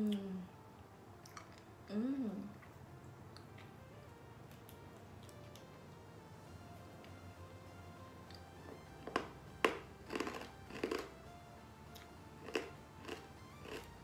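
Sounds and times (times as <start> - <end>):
faint background music: 0.0 - 14.0
hard candy crunching: 8.3 - 11.3, 11.9 - 14.0.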